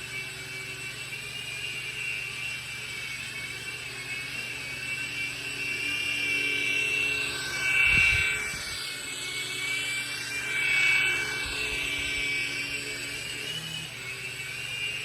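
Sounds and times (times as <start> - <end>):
toy drone motors whining: 0.0 - 15.0.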